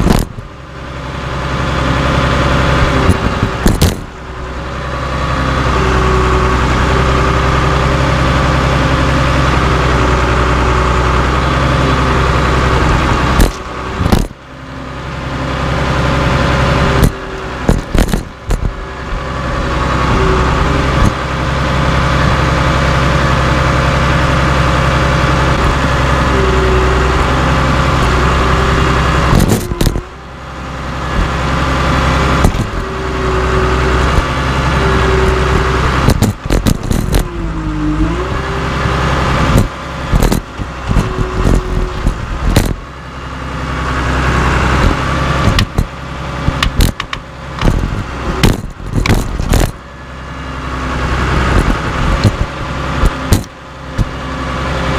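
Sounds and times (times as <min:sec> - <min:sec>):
bulldozer diesel engine whining: 0:00.0 - 0:54.9
metallic clanks and rattles: 0:17.0 - 0:18.7.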